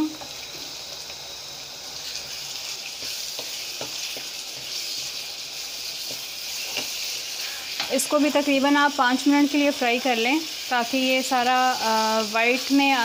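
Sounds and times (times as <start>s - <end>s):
mince sizzling in a pan: 0.0s - 13.0s
spatula tapping and scraping: 3.0s - 5.1s, 5.9s - 8.0s.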